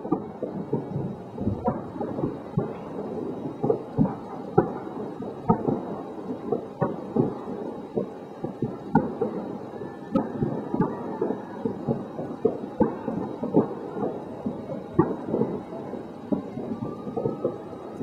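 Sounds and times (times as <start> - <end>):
fireworks booming: 0.0 - 18.0.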